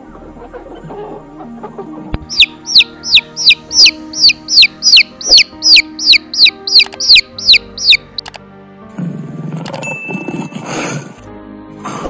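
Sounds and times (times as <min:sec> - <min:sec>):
chick peeping: 0:00.0 - 0:08.3.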